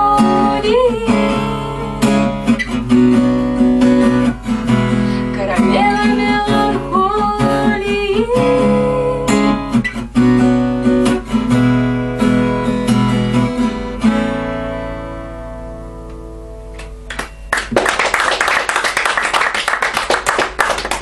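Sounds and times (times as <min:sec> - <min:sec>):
acoustic guitar strumming: 0:00.0 - 0:17.8
person singing: 0:05.3 - 0:09.4
applause: 0:16.8 - 0:21.0.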